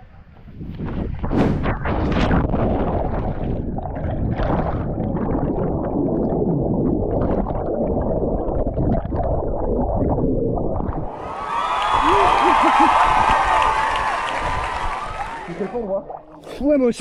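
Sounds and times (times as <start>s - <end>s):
rushing river water: 11.1s - 15.9s.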